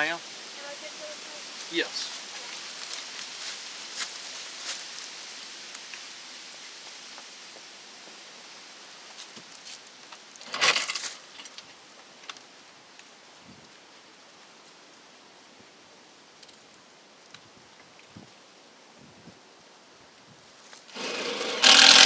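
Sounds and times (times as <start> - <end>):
small hard objects clattering: 10.4 - 11.6.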